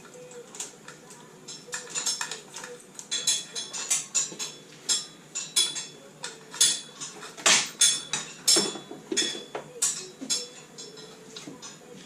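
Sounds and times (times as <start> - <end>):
metal tools clinking and knocking: 1.5 - 12.0.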